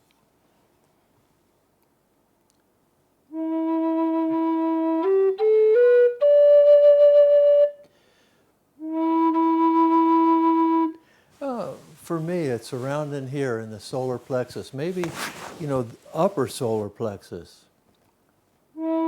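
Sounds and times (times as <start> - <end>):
flute playing: 3.3 - 7.9, 8.8 - 11.8, 18.8 - 19.0.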